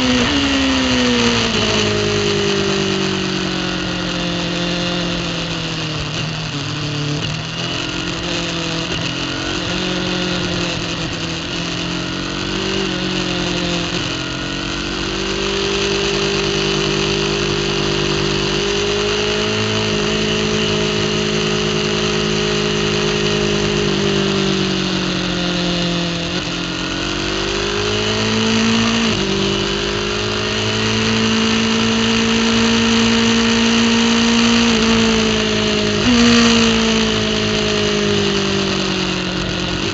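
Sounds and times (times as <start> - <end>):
motorcycle engine high revs: 0.0 - 39.9.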